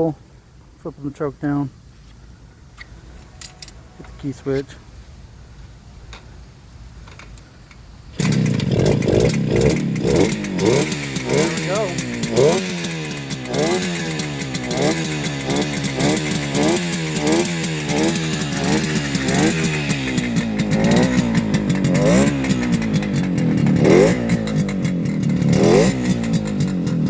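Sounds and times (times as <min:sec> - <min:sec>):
two-stroke engine revs blipping: 0:08.1 - 0:27.0.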